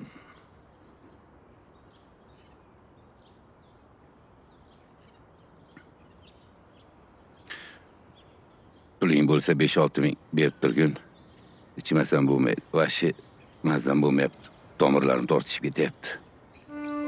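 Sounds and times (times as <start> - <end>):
faint outdoor background noise: 0.0 - 17.0
high bird chirps: 10.0 - 17.0.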